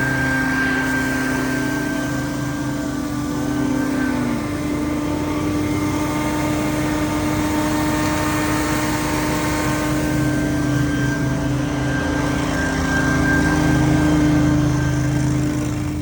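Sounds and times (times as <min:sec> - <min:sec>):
lawn equipment engine droning: 0:00.0 - 0:16.0.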